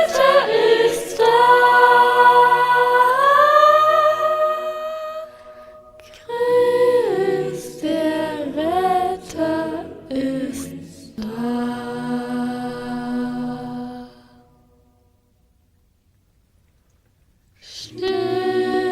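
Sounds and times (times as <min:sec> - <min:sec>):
person singing: 0:17.7 - 0:18.9.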